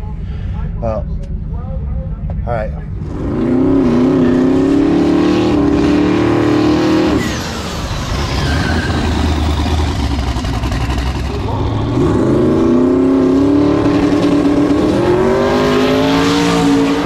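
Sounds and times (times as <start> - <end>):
low engine rumble: 0.0 - 4.9, 7.6 - 15.8
race car engine at full throttle: 0.0 - 17.0.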